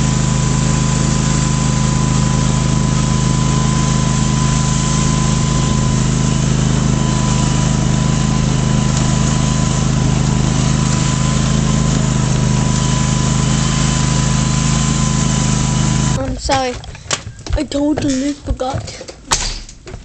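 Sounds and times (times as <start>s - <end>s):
lawn tractor engine running: 0.0s - 20.0s.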